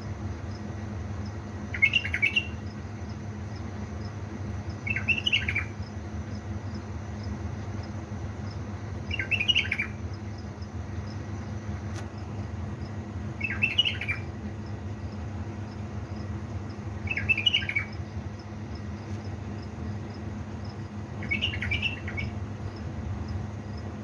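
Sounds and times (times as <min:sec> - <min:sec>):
steady low hum: 0:00.0 - 0:24.0
bird chirping: 0:01.7 - 0:02.8, 0:04.7 - 0:11.6, 0:13.4 - 0:15.1, 0:17.0 - 0:19.0, 0:21.2 - 0:23.4.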